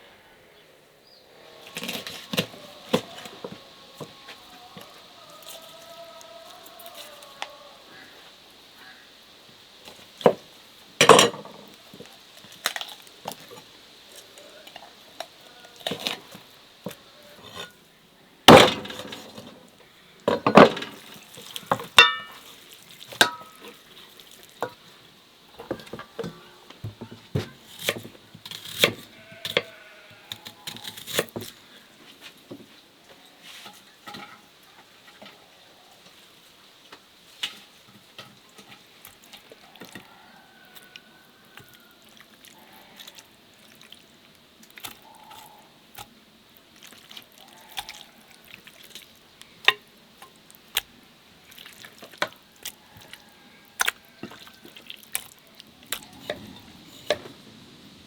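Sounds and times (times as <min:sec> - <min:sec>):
water dripping and splashing: 0:08.4 - 0:17.1, 0:20.2 - 0:26.4, 0:37.2 - 0:57.5
kitchen handling clicks and knocks: 0:11.0 - 0:11.6, 0:20.3 - 0:21.0.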